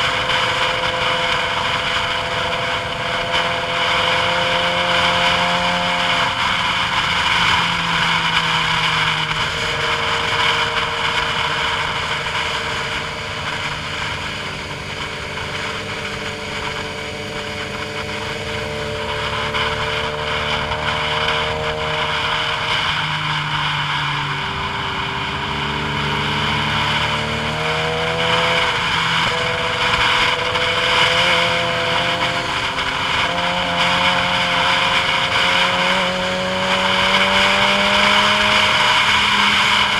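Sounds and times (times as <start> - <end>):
vehicle engine running: 0.0 - 39.9
wind and road noise: 0.0 - 39.9.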